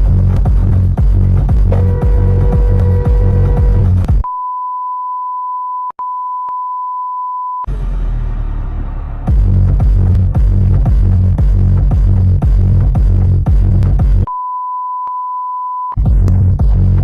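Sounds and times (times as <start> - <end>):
electronic dance music: 0.0 - 4.2.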